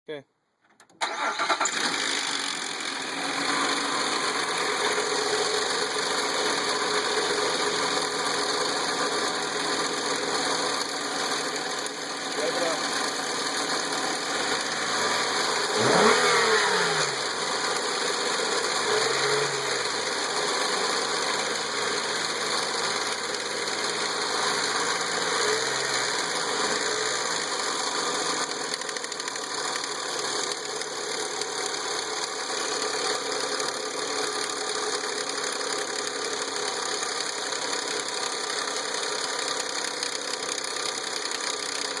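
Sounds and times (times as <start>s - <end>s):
car engine revving and idling: 1.4s - 41.2s
timing chain rattle: 27.4s - 42.0s.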